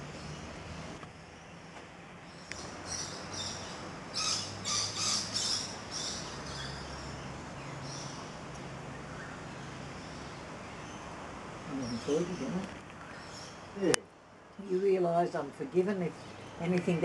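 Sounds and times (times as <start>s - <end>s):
birds giving high-pitched calls: 2.2s - 13.8s.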